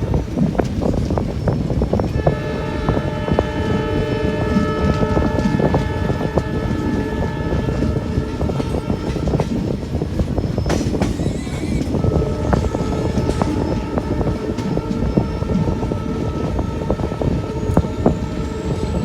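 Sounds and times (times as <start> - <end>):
train rumbling on rails: 0.0 - 19.0
wheel and rail clatter: 0.0 - 19.0
locomotive horn: 2.2 - 9.7, 12.0 - 19.0.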